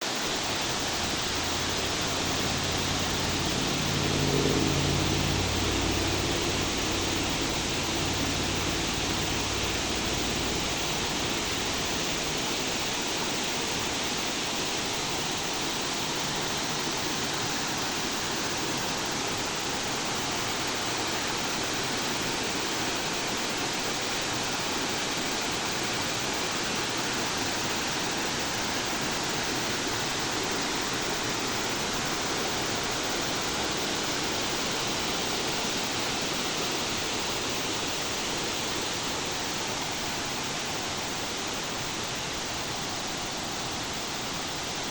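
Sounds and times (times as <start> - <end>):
waterfall rushing: 0.1 - 13.8
low rumble: 0.6 - 13.0.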